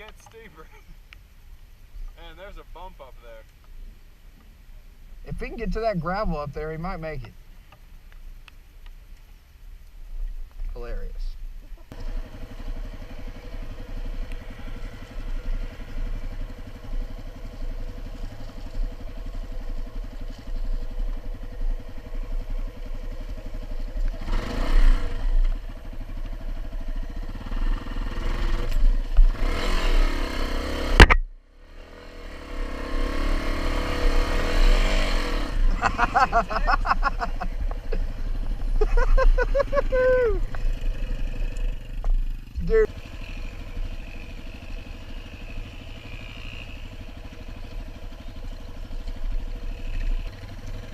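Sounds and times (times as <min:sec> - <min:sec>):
engine revving: 0:11.9 - 0:50.9.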